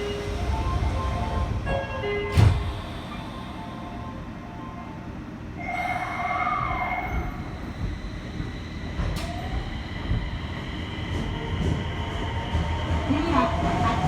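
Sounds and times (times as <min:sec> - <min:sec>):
wheels rumbling on rail: 0:00.0 - 0:04.4, 0:05.5 - 0:14.0
train motor whine: 0:05.6 - 0:12.3.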